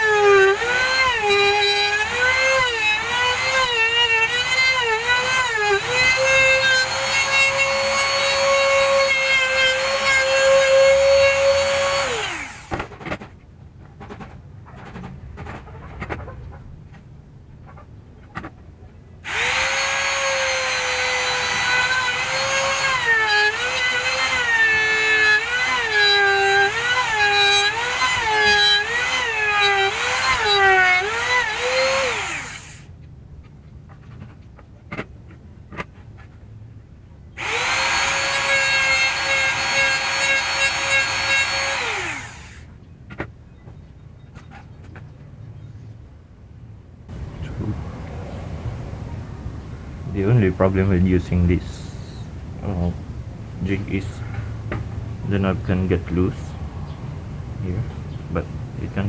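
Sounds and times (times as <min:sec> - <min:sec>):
trim router cutting wood: 0:00.0 - 0:12.8, 0:19.3 - 0:32.8, 0:37.4 - 0:42.6.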